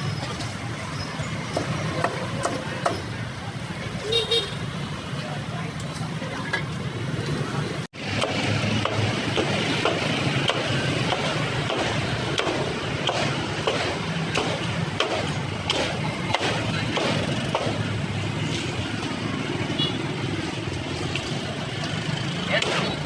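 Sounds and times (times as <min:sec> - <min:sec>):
steady traffic noise: 0:00.0 - 0:23.0
sharp clicks and knocks: 0:08.0 - 0:19.2.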